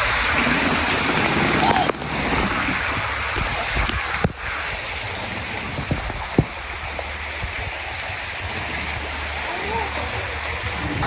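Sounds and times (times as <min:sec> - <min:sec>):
flowing splashing water: 0:00.0 - 0:11.0.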